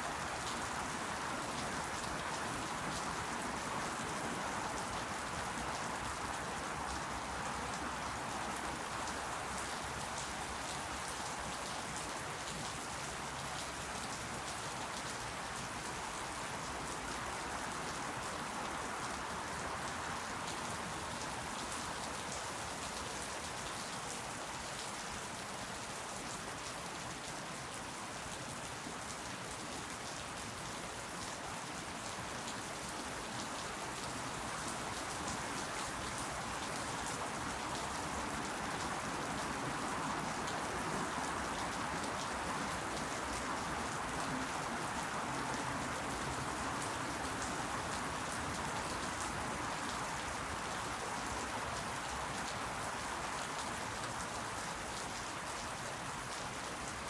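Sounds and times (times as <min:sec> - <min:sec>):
rain pattering on leaves: 0:00.0 - 0:57.0.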